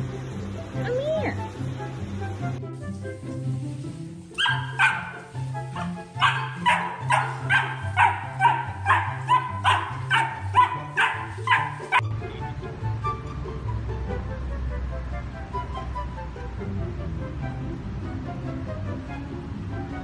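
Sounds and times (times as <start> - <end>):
background music: 0.0 - 20.0
puppy yipping: 4.4 - 5.2, 5.8 - 12.0.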